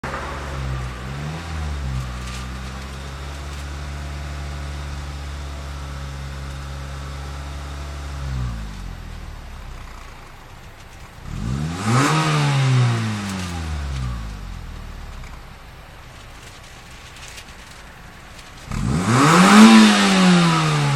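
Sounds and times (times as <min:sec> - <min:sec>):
car engine idling and revving: 0:00.0 - 0:20.9.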